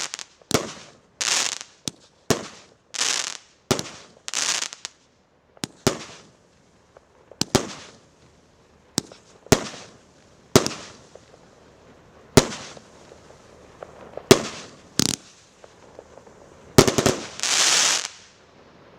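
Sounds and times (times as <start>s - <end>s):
firework bangs: 0.0s - 5.0s, 5.6s - 6.4s, 7.0s - 8.2s, 8.9s - 11.5s, 12.3s - 18.4s
firework crackling hiss: 0.0s - 18.9s.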